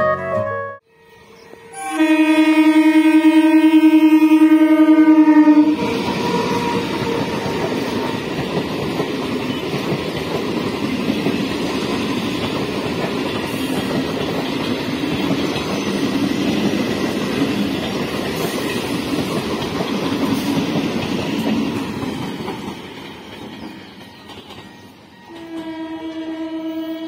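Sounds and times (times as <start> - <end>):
train wheels clattering on rails: 5.8 - 26.4.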